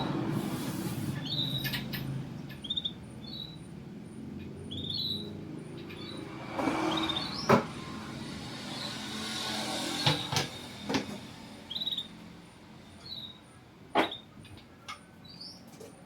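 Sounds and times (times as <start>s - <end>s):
canary chirping trills: 1.1s - 7.6s, 11.6s - 12.3s, 13.0s - 15.7s.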